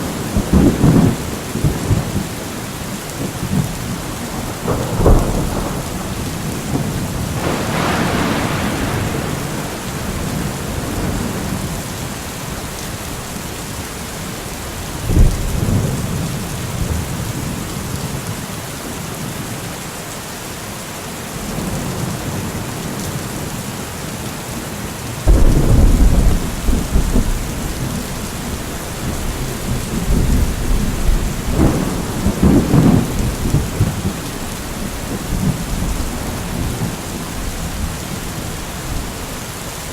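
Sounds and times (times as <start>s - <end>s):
thunder rumbling: 0.0s - 13.2s, 25.2s - 39.9s
heavy rain: 0.0s - 39.9s.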